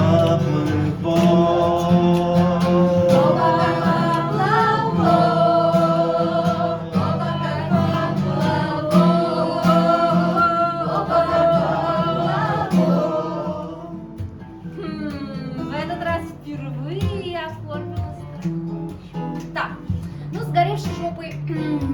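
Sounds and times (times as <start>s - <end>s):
voices singing together: 0.0s - 15.8s
guitar accompaniment: 0.0s - 21.9s.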